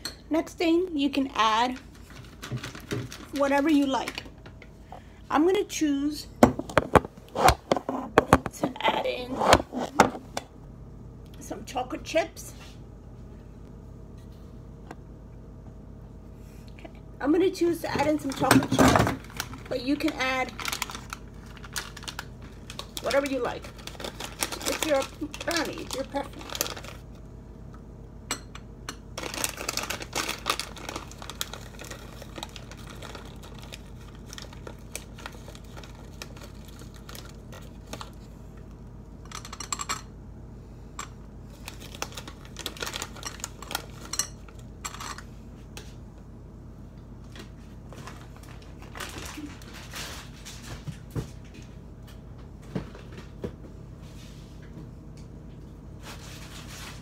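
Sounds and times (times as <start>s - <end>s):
steady low hum: 0.0s - 57.0s
plastic bag crinkling: 1.8s - 4.3s, 18.2s - 27.1s, 29.2s - 38.2s, 41.5s - 44.6s, 48.0s - 50.5s.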